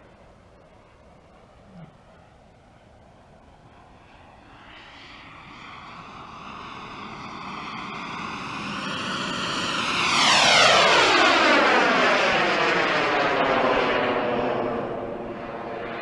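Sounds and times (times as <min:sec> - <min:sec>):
model jet engine flying past: 0:00.0 - 0:16.0.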